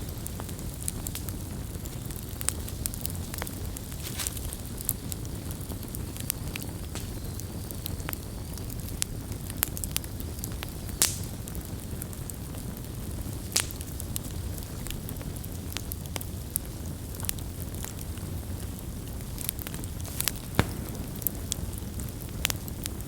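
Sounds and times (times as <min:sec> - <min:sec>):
campfire burning: 0:00.0 - 0:23.0
wood popping: 0:00.1 - 0:08.1, 0:19.4 - 0:23.0.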